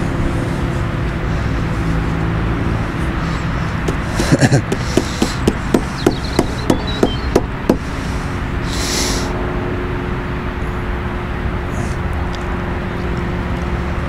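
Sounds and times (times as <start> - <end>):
light knocks: 3.9 - 7.8
short hiss: 8.7 - 9.3.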